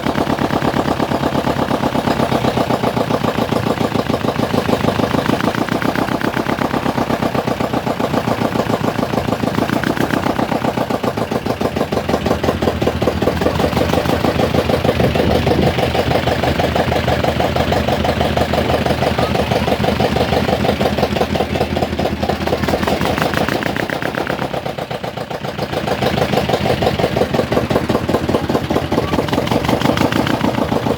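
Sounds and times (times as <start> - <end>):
boat engine running: 0.0 - 30.9.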